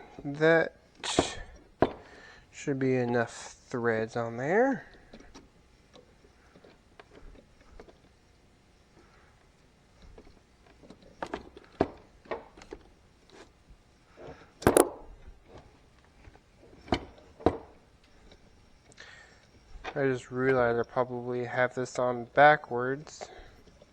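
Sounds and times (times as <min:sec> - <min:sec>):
metal tools clicking and knocking: 0:14.7 - 0:14.9.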